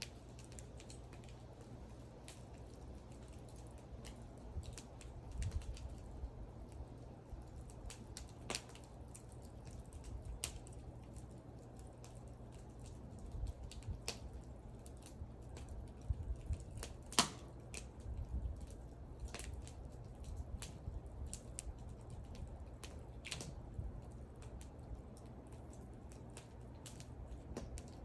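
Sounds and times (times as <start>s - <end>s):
low steady rumble: 0.0s - 28.0s
wood fire crackling and popping: 0.0s - 28.0s.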